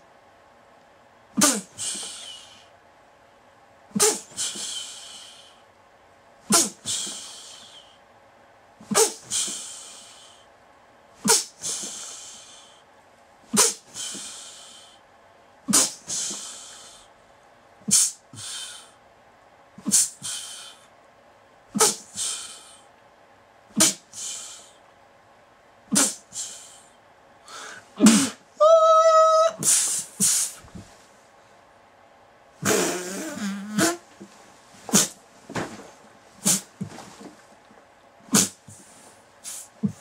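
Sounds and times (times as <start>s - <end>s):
person crying out with hissing breaths: 27.5s - 30.5s
high-pitched held cry: 28.0s - 29.8s.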